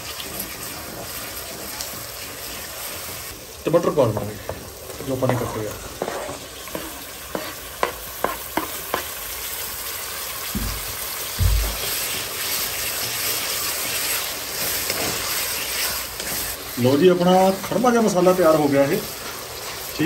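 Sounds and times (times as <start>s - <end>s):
tomatoes sizzling in hot oil: 0.0s - 20.0s
wooden spatula tapping a pan: 5.2s - 9.1s, 10.5s - 12.0s
dull thumps: 10.5s - 11.9s.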